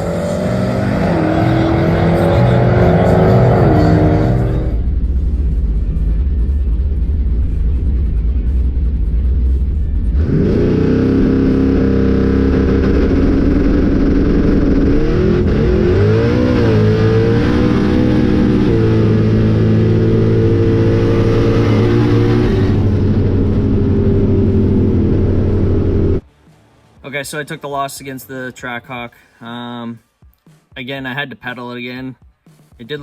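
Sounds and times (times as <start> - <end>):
drag car engine at full throttle: 0.0 - 26.2.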